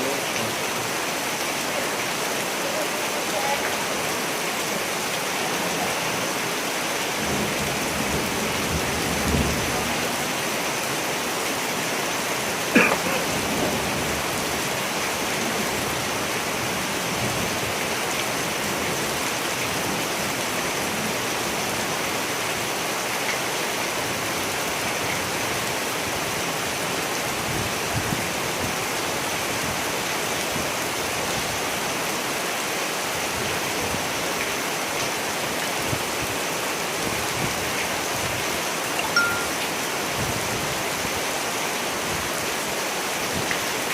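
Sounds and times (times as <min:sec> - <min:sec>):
steady rain falling: 0:00.0 - 0:43.9
low rumble of thunder: 0:07.2 - 0:09.9.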